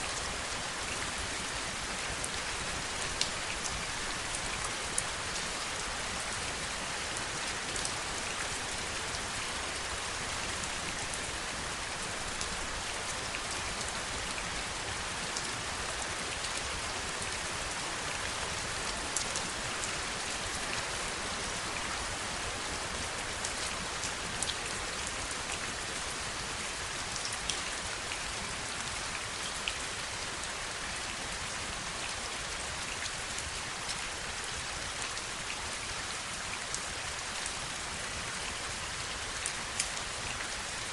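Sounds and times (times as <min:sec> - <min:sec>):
heavy rain: 0:00.0 - 0:40.9
raindrops ticking on a surface: 0:02.2 - 0:05.6.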